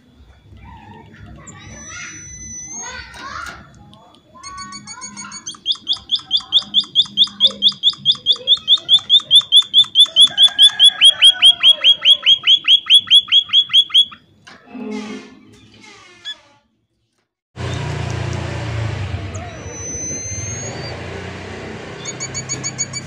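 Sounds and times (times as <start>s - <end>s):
soft squeaky bird chirps: 0.6s - 3.3s, 4.4s - 14.3s, 19.3s - 21.0s, 22.0s - 23.0s
bird sharp high chirps: 1.4s - 3.1s, 4.6s - 14.2s, 19.3s - 21.0s, 22.0s - 23.0s.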